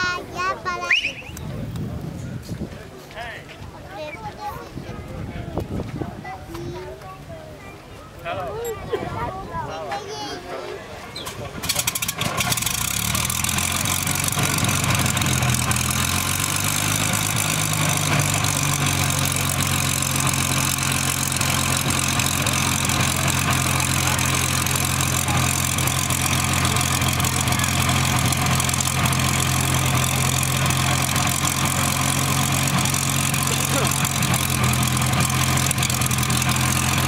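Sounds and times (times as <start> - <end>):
aircraft engine idling: 11.6 - 37.0.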